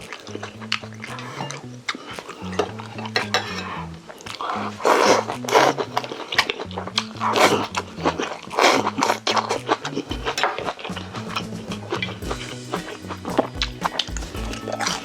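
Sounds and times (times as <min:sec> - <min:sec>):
chewing: 0:00.0 - 0:15.0
background music: 0:08.8 - 0:15.0
utensils clicking on bowl: 0:12.2 - 0:15.0.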